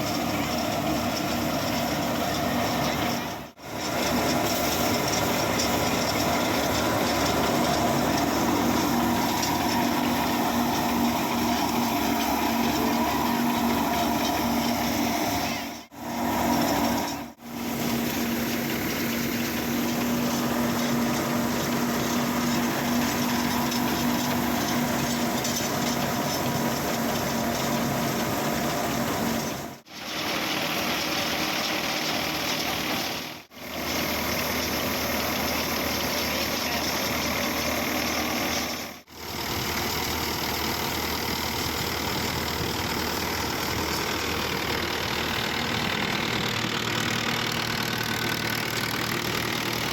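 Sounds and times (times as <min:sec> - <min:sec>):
tractor engine running thresher: 0:00.0 - 0:49.9.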